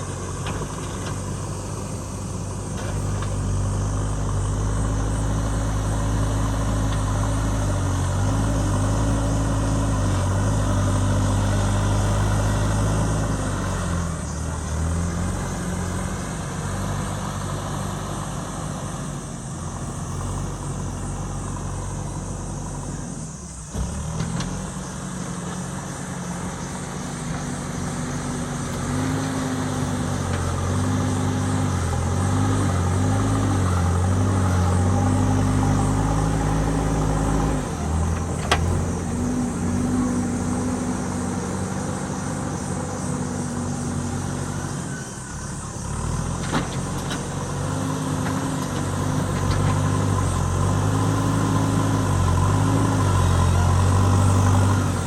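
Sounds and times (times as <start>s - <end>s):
diesel engine under load: 0.0s - 55.0s.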